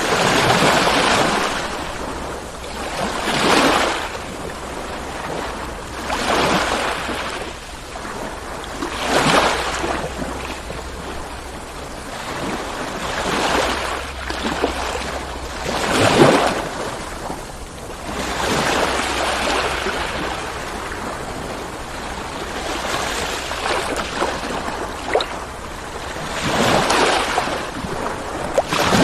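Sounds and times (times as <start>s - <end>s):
ocean waves breaking: 0.0s - 29.0s
steady low rumble: 6.9s - 29.0s.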